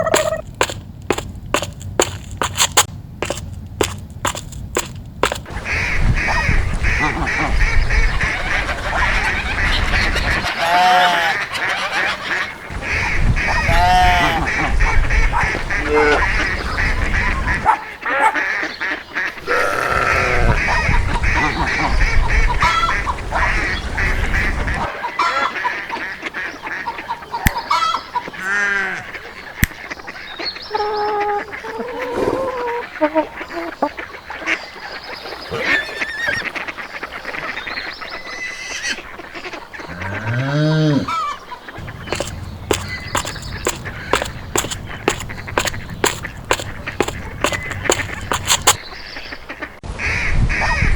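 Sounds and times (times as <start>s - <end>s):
ducks quacking: 0.0s - 50.9s
geese honking: 5.2s - 34.8s, 41.0s - 50.8s.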